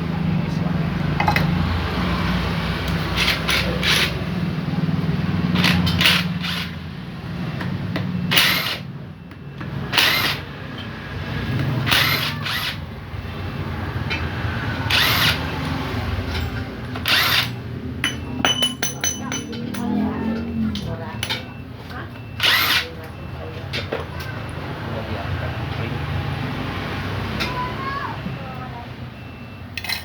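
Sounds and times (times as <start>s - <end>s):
power tool bursts: 14.9s - 15.5s.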